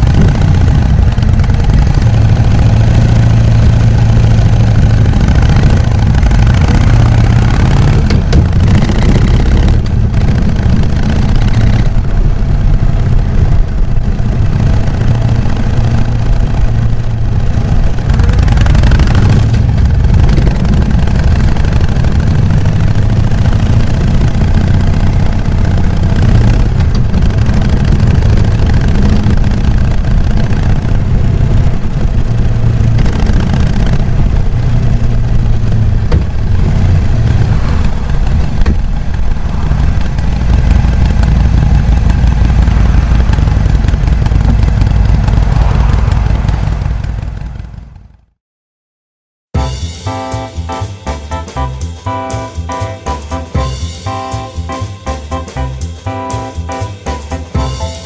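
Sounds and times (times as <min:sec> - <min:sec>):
motorcycle engine running: 0:00.0 - 0:48.4, 0:49.6 - 0:58.0.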